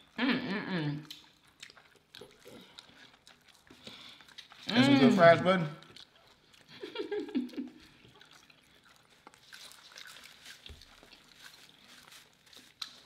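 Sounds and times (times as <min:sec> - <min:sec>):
faint wet chewing: 0:00.0 - 0:13.0.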